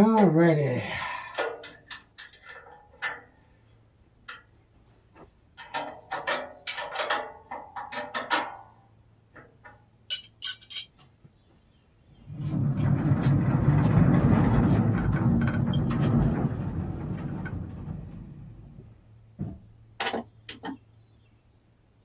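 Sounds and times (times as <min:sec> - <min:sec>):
metal parts clinking: 0:10.1 - 0:11.0.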